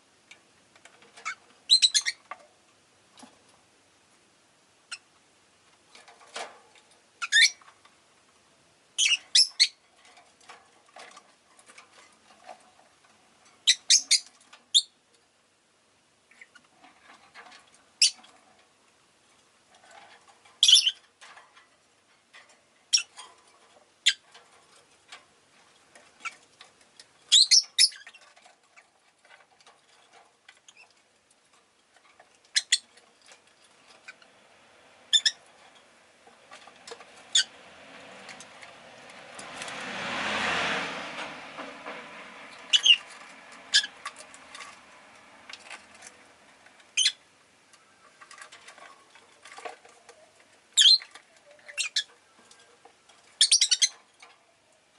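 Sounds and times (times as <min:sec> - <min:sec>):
lovebirds chirping: 0:01.2 - 0:02.3, 0:09.0 - 0:09.8, 0:13.6 - 0:15.0, 0:20.6 - 0:21.0, 0:27.2 - 0:28.3, 0:32.5 - 0:32.9, 0:35.1 - 0:35.4, 0:42.6 - 0:44.0, 0:46.8 - 0:48.4, 0:50.0 - 0:54.9
passing vehicle: 0:33.8 - 0:46.9.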